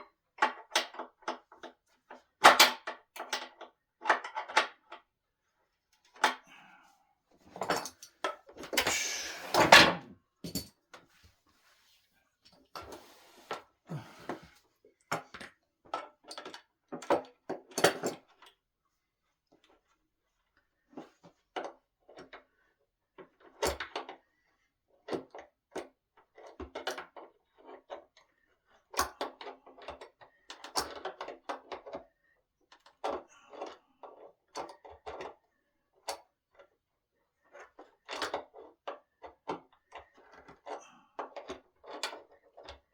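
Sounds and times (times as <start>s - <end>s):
loud scrape: 8.8s - 9.9s.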